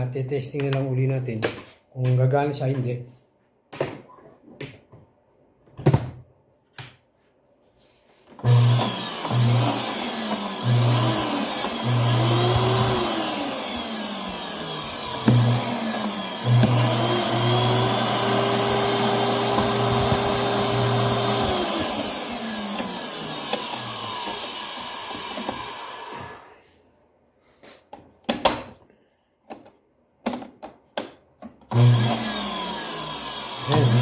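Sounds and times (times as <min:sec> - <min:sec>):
vacuum cleaner motor running: 0:08.4 - 0:26.6, 0:31.7 - 0:34.0
sharp clicks and knocks: 0:29.5 - 0:31.7.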